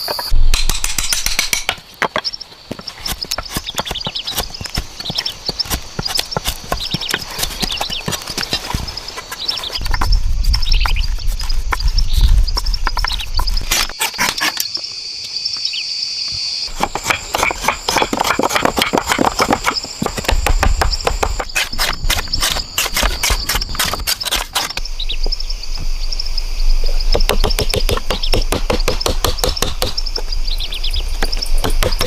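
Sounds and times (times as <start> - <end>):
birds calling: 0.0 - 32.0
insects chirping: 0.0 - 32.0
sharp knocks on wood: 27.1 - 30.0.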